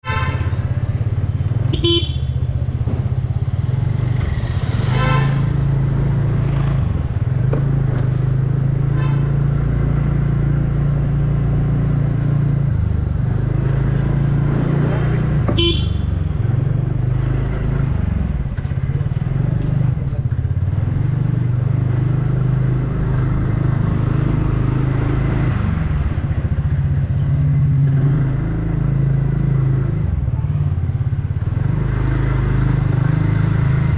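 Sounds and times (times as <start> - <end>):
scooter engine and wind rumble: 0.0 - 33.9
short vehicle horn toots: 1.7 - 2.4, 15.5 - 16.2.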